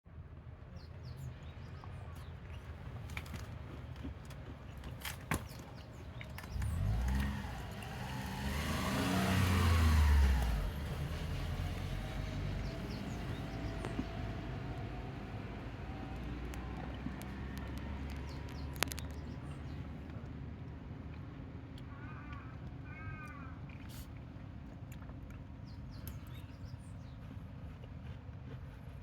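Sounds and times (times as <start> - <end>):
car driving past: 6.5 - 19.8
faint clicks: 16.0 - 22.5.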